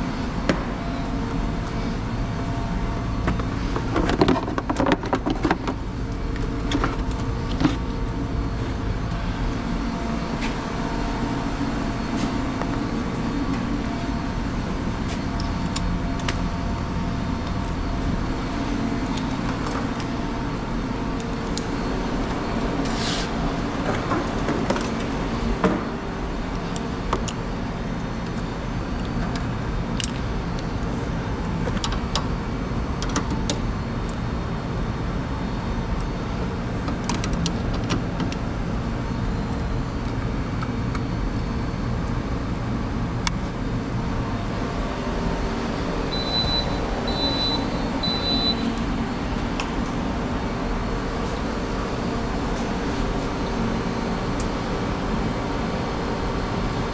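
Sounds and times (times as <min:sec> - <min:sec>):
machine running: 0:00.0 - 0:28.1, 0:42.4 - 0:56.9
short high beeps: 0:46.1 - 0:48.7.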